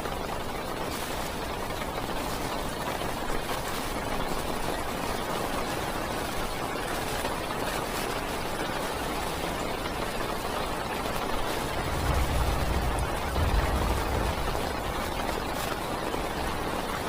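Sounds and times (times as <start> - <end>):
heavy rain on car roof: 0.0 - 17.0
low rumble: 11.5 - 16.0.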